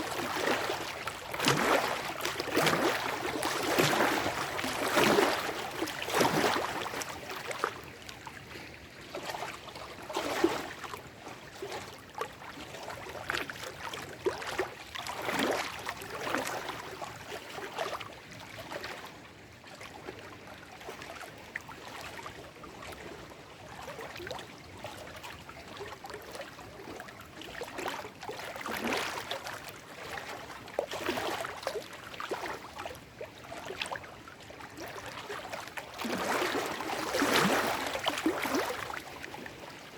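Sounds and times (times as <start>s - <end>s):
water gurgling: 0.0s - 8.0s, 34.7s - 39.9s
waves lapping against rocks: 0.0s - 19.0s, 23.9s - 39.9s.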